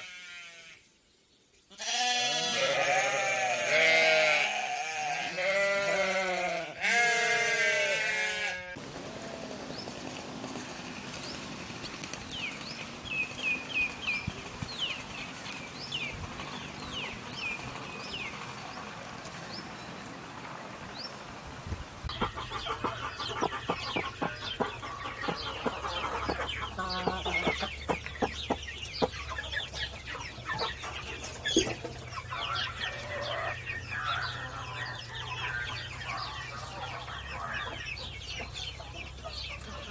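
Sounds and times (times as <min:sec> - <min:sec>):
sheep bleating: 0:00.0 - 0:00.8, 0:01.7 - 0:09.3
chickens clucking: 0:22.1 - 0:39.9
small birds chirping: 0:22.1 - 0:39.9.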